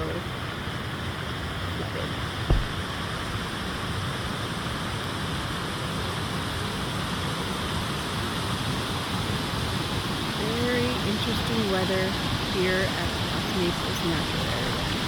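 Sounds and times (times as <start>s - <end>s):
floodwater rushing across road: 0.0s - 15.0s
low thump: 2.5s - 3.4s.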